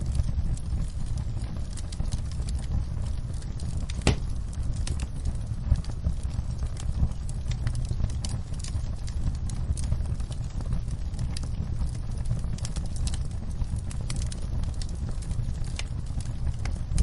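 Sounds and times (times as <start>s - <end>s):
low steady rumble: 0.0s - 17.0s
wood fire crackling: 0.0s - 17.0s.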